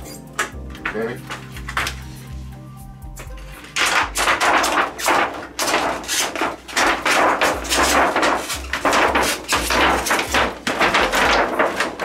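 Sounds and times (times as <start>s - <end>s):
plastic sheet crinkling and crackling: 3.3s - 12.0s.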